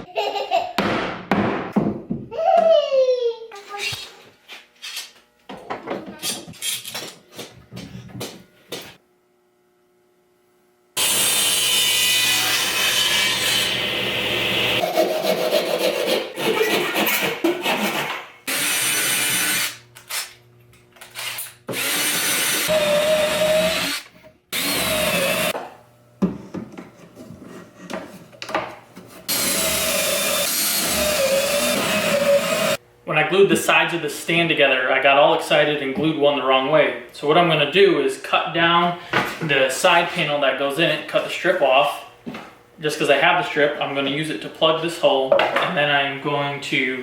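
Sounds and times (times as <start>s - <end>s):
power tool cutting wood: 11.0s - 20.2s, 21.2s - 25.6s, 29.3s - 32.8s.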